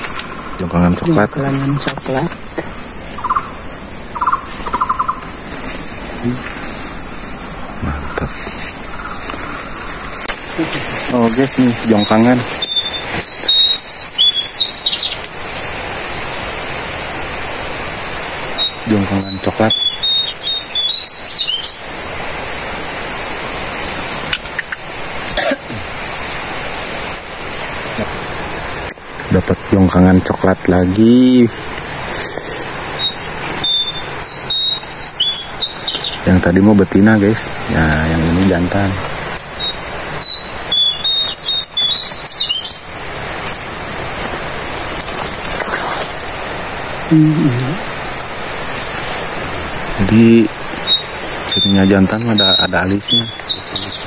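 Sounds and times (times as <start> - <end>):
small birds chirping: 0.0 - 16.8, 18.0 - 23.0, 23.8 - 28.2, 28.8 - 54.0
forest background hiss: 0.0 - 54.0
close rustles: 43.4 - 46.8, 48.4 - 49.9.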